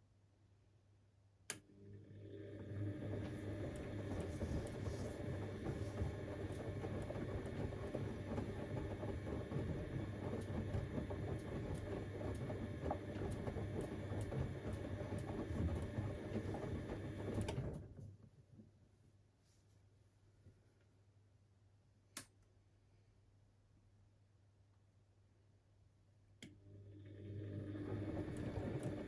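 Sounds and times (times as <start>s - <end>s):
washing machine motor hum: 1.7s - 18.0s, 26.6s - 29.0s.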